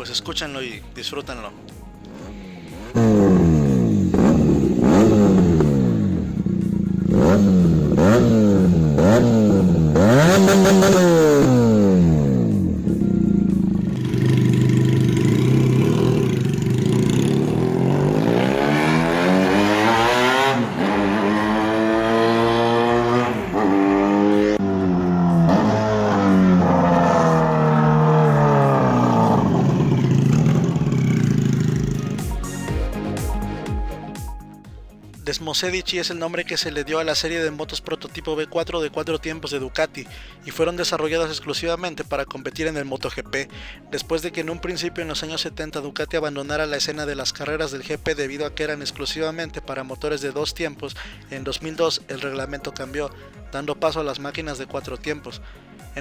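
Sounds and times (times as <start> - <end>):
motorcycle engine revving: 2.8 - 33.5.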